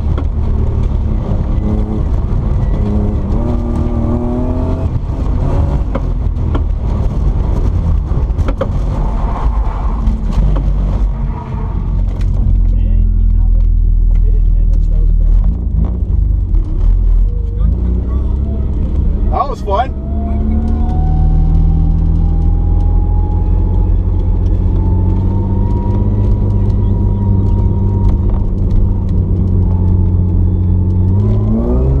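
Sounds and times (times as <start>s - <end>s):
car engine rumbling: 0.0s - 32.0s
sharp clicks and knocks: 5.3s - 9.0s.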